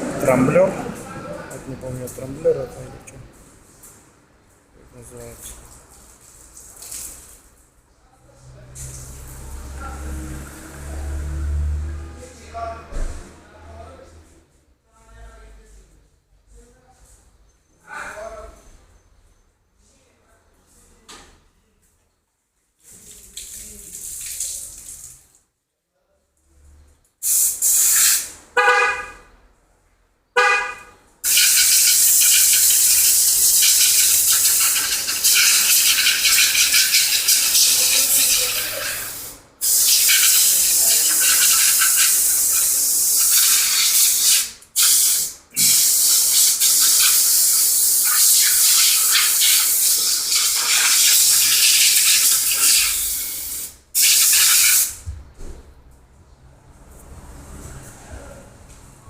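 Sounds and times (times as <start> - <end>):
pressure washer spraying water: 27.2 - 28.3, 31.2 - 55.0.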